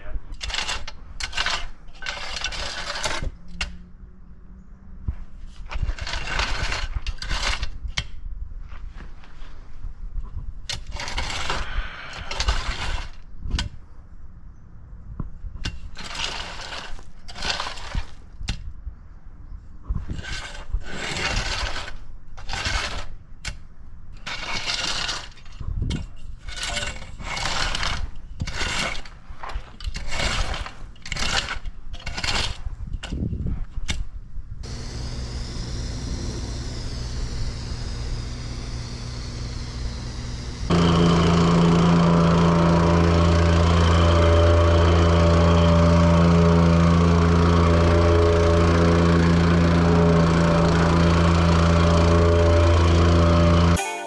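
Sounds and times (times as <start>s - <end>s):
rake scraping asphalt: 0.4s - 3.4s, 5.5s - 7.8s, 16.0s - 18.2s, 24.2s - 25.5s, 34.6s - 53.8s
engine running steadily: 34.6s - 53.8s.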